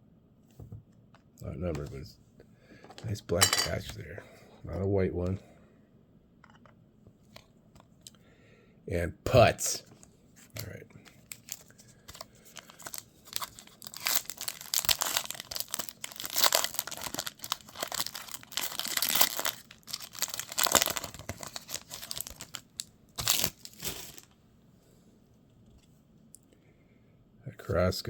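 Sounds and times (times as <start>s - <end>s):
card pack wrapper tearing: 10.6s - 24.3s.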